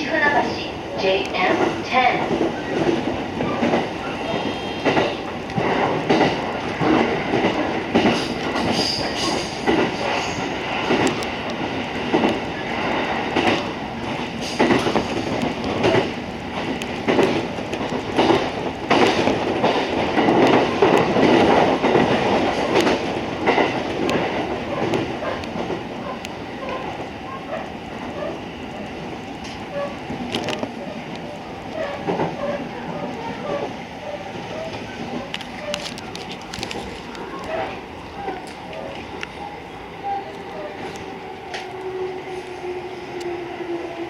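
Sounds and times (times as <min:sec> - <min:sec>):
train rumbling: 0:00.0 - 0:44.0
wheels clacking over rail joints: 0:01.0 - 0:28.4.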